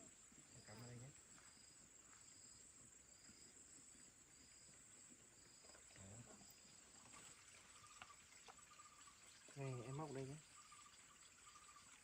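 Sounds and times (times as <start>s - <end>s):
insect chirp: 0.0s - 12.0s
insects humming: 0.0s - 12.0s.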